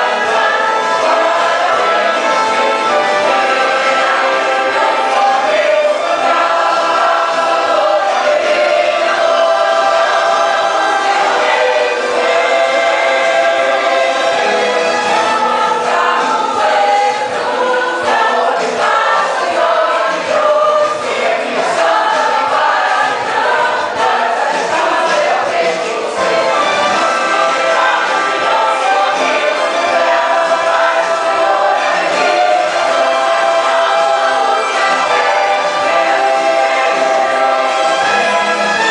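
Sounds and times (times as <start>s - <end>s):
choir singing a hymn: 0.0s - 38.9s.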